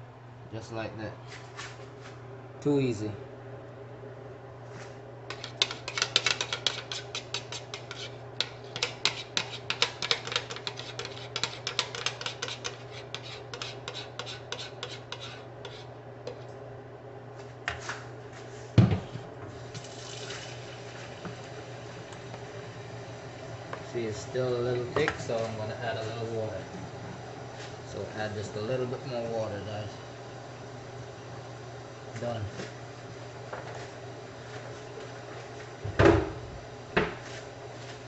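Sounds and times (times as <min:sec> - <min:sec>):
steady low hum: 0:00.0 - 0:38.0
utensil clicking against bowl: 0:05.3 - 0:12.8.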